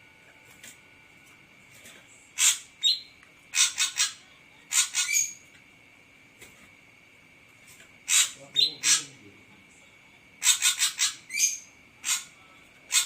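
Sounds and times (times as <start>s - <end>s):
bird harsh scratchy calls: 2.4s - 5.4s, 8.0s - 9.1s, 10.4s - 13.0s.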